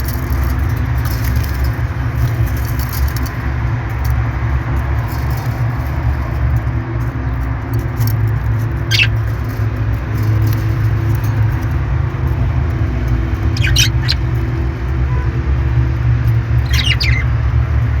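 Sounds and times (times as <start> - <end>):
parrot squeaky calls: 8.8 - 9.2, 13.4 - 14.6, 16.6 - 17.4.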